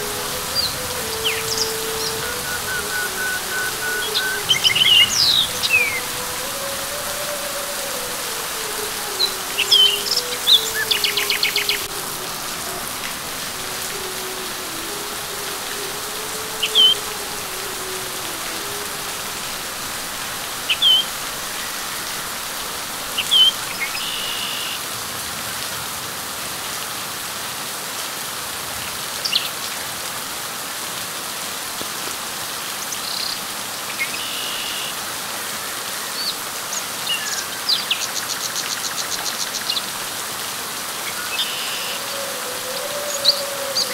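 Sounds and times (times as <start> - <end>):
bird chirping: 0.0 - 12.8
rain falling on leaves: 0.0 - 43.9.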